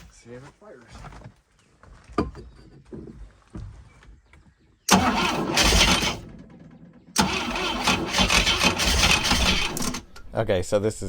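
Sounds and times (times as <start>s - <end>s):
boat engine cranking: 4.9s - 10.4s.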